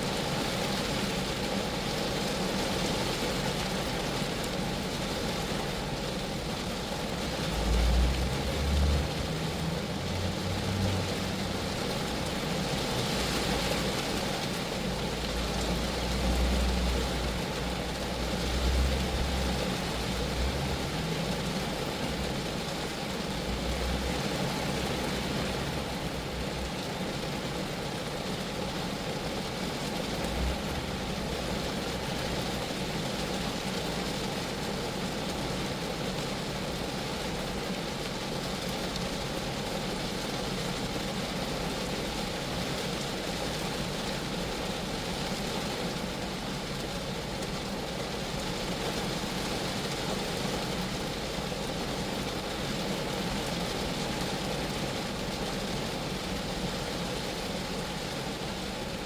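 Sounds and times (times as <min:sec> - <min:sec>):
rain on a car: 0:00.0 - 0:59.0.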